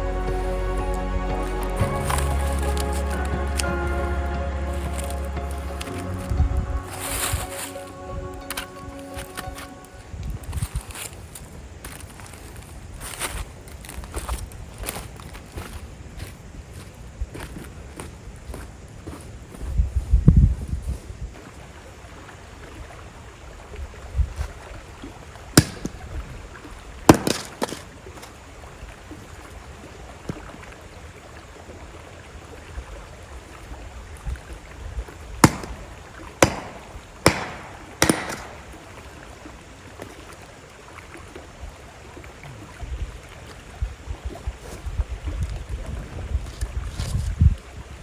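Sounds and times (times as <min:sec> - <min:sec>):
slow-moving river: 0:00.0 - 0:48.0
fire popping sharply: 0:35.4 - 0:38.9
campfire crackling: 0:35.4 - 0:39.3.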